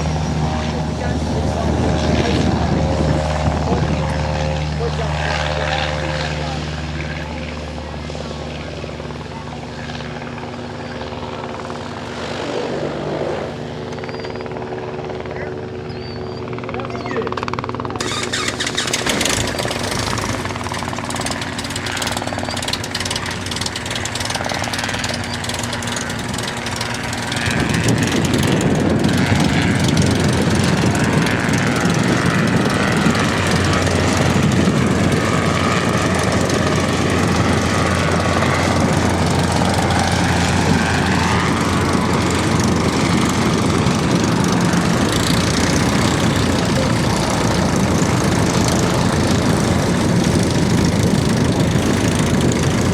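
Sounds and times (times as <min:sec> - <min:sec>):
propeller airplane engine: 0:00.0 - 0:52.9.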